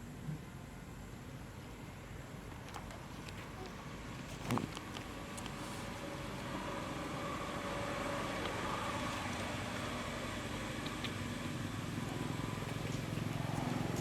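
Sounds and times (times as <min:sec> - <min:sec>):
engine hum: 0:04.2 - 0:14.0.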